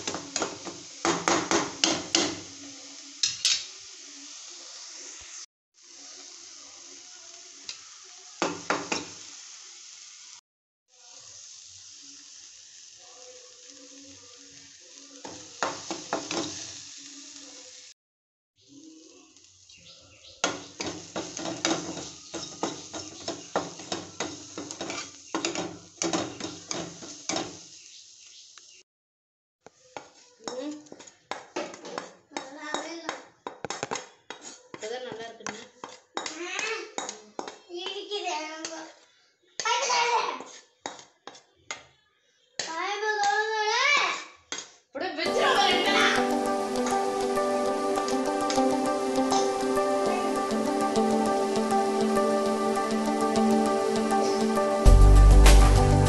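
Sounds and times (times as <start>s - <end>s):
onions sizzling in a pan: 0.0s - 18.0s, 18.6s - 28.8s, 29.6s - 41.4s, 45.2s - 56.0s
metal spatula scraping and knocking: 20.4s - 27.6s, 33.6s - 36.4s.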